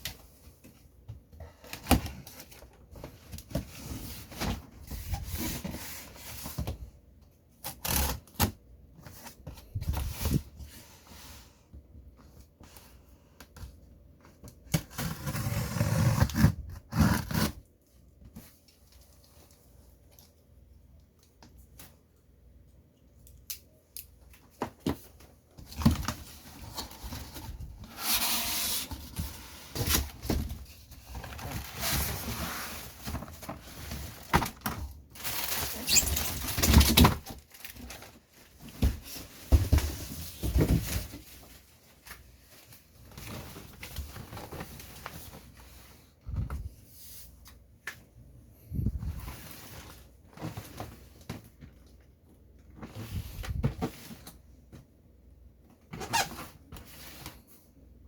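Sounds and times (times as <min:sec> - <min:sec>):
packaging rustling and tearing: 0:25.7 - 0:45.6.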